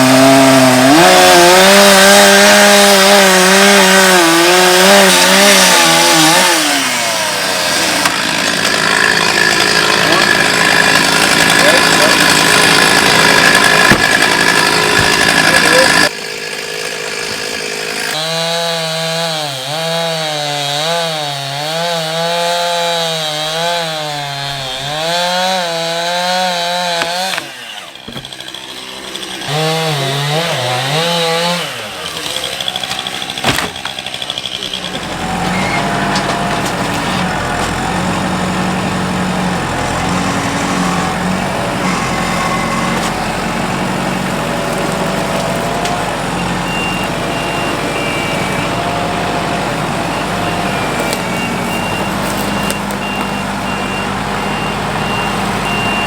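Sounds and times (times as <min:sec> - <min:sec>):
chainsaw cutting log: 0:00.0 - 0:56.0
steady engine with rushing noise: 0:32.9 - 0:56.0.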